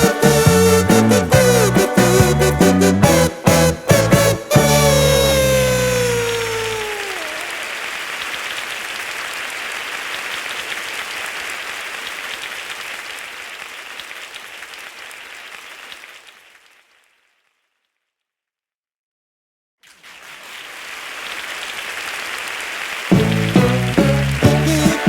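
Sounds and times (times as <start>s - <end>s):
falling music tone: 0.0s - 7.3s
applause: 5.0s - 17.6s, 19.8s - 25.0s.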